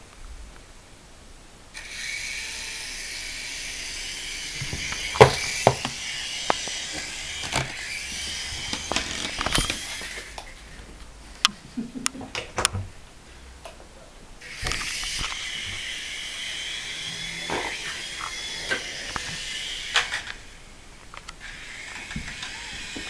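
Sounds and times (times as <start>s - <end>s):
toy helicopter motor whirring: 1.8s - 10.4s, 14.4s - 20.8s, 21.4s - 23.0s.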